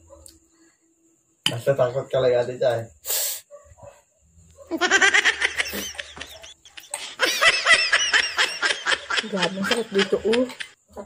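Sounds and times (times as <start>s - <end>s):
high-pitched giggles: 4.7s - 10.7s.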